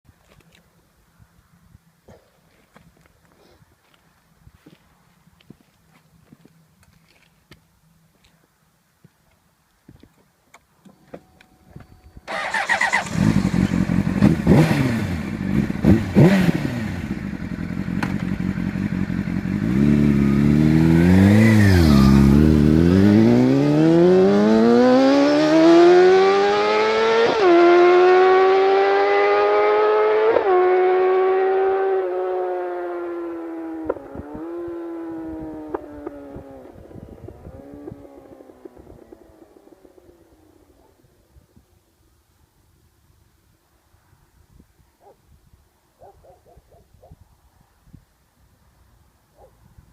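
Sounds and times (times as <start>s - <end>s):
motorcycle engine revving and accelerating: 12.3s - 40.8s.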